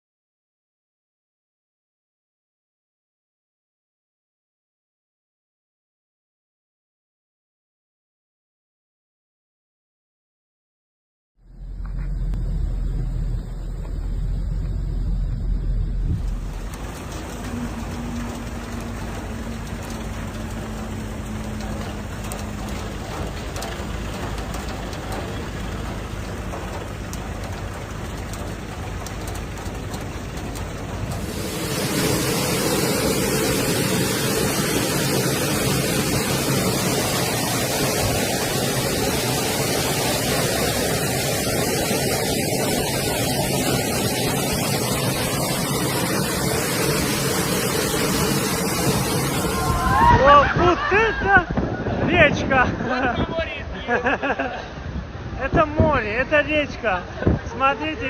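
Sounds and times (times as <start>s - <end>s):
faint engine hum: 11.4s - 50.0s
car traffic: 11.4s - 55.5s
heavy rain pouring: 11.5s - 58.0s
running water: 12.0s - 58.0s.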